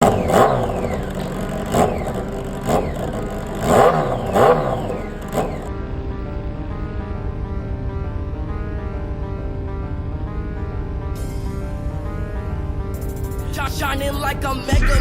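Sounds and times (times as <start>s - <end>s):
engine revving in blips: 0.0s - 5.9s.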